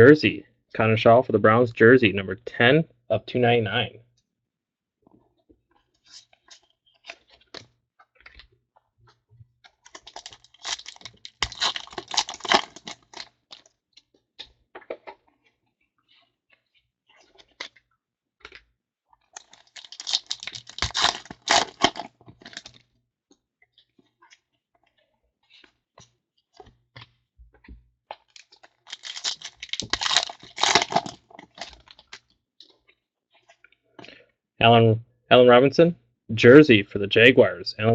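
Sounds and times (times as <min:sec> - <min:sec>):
card packs crinkling and tearing: 0:09.9 - 0:13.7, 0:19.4 - 0:22.8, 0:28.3 - 0:32.3.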